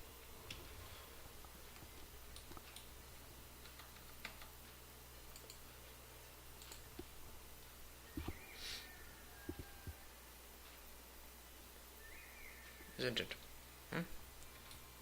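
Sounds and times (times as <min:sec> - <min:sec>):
low steady hum: 0:00.0 - 0:15.0
mouse and keyboard clicks: 0:06.6 - 0:07.1.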